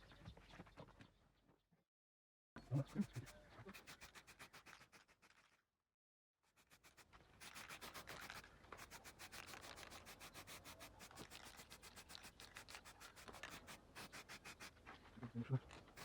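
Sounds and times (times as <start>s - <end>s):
hand sanding strokes: 2.8s - 5.4s, 6.6s - 14.8s.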